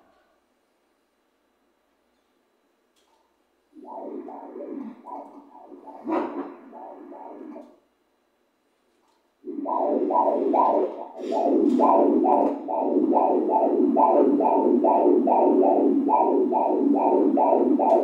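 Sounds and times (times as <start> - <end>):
fetal heartbeat doppler pulses: 3.7 - 7.8, 9.4 - 18.0.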